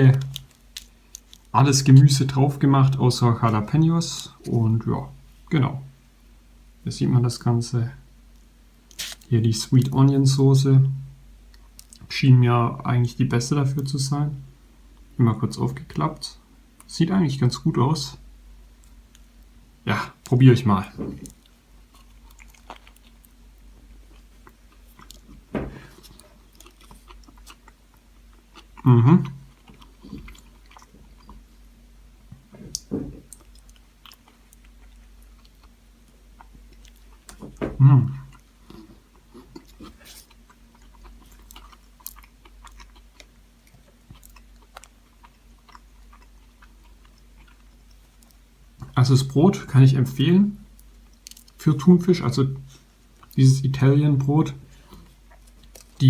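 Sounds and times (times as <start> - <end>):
person chewing sandwich: 8.9 - 9.3, 21.2 - 31.7, 32.3 - 37.6, 38.2 - 48.5, 54.7 - 56.0.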